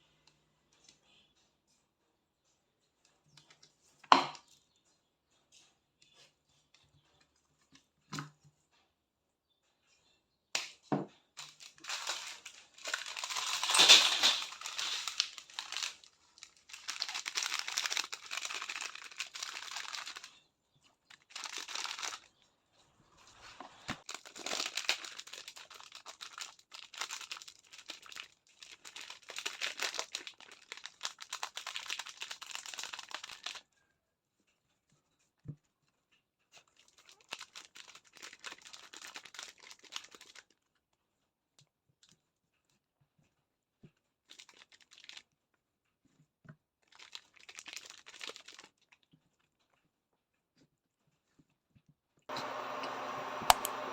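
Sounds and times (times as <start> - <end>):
material crinkling and rustling: 11.3 - 52.8.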